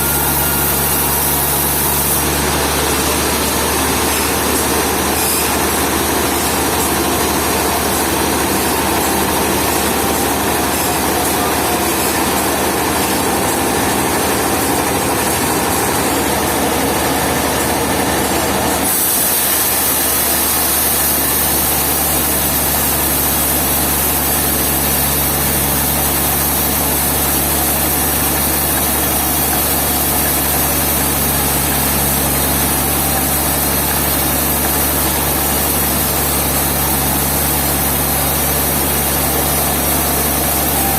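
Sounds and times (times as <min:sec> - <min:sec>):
heavy machinery engine running: 0:00.0 - 0:40.9.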